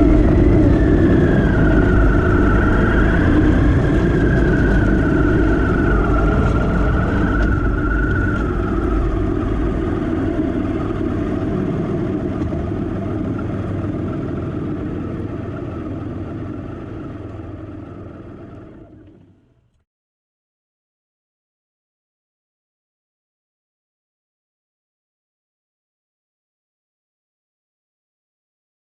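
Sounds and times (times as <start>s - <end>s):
motorcycle engine running: 0.0s - 19.6s.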